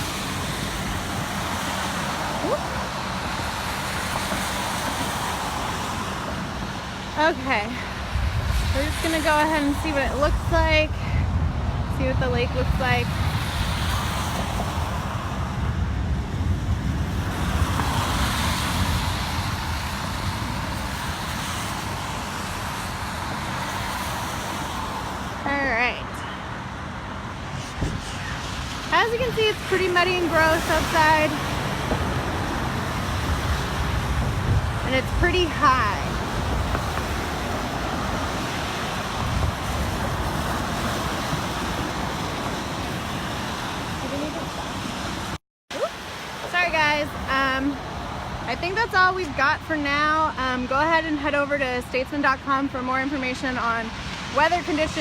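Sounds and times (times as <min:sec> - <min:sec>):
tyre hiss on wet road: 0:00.0 - 0:10.3, 0:17.3 - 0:25.4
road traffic passing: 0:00.0 - 0:55.0
wind rumble on microphone: 0:00.0 - 0:55.0.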